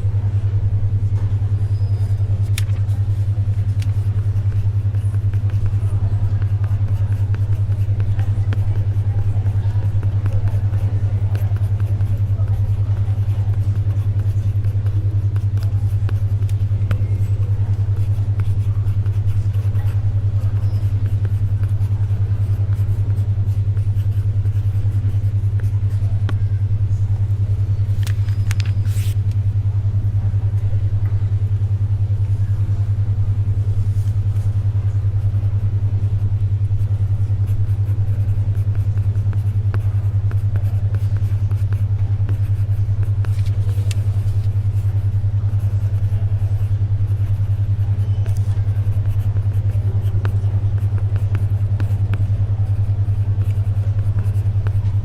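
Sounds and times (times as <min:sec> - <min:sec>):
faint library ambience: 0:00.0 - 0:55.0
pulsing low hum tone: 0:00.0 - 0:55.0
paper rustle: 0:27.9 - 0:29.2, 0:43.3 - 0:44.5.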